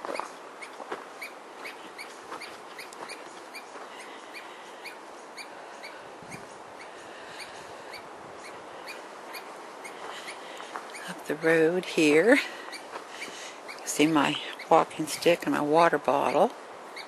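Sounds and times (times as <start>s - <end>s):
bird chirping: 0.0s - 15.4s, 16.2s - 17.0s
wind hiss: 0.0s - 17.0s.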